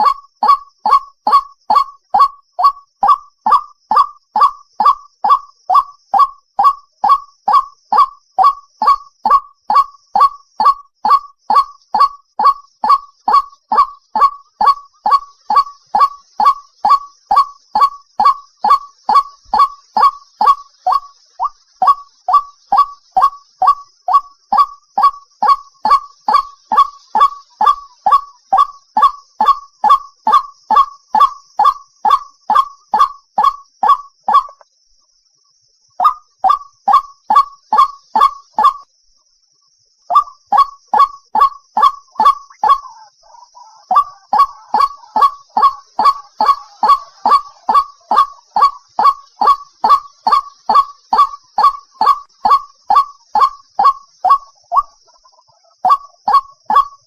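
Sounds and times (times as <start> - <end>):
bird harsh honking calls: 0.0 - 29.6, 43.6 - 54.9
waterhen calling short notes: 40.1 - 57.0.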